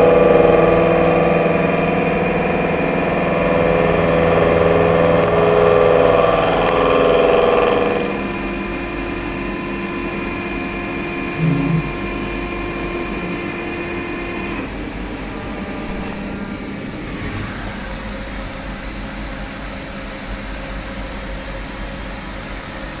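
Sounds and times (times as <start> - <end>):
machine humming and whining: 0.0 - 9.4, 11.3 - 19.7.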